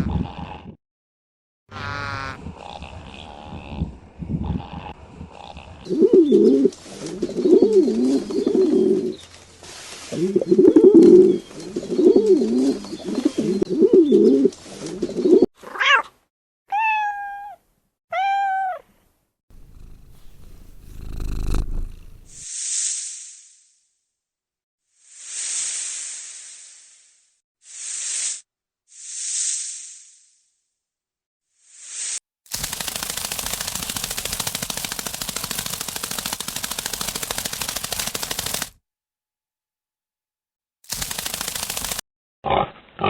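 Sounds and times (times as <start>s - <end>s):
cat yowling and meowing: 15.6s - 16.1s, 16.7s - 18.9s
cat hissing: 19.6s - 22.4s.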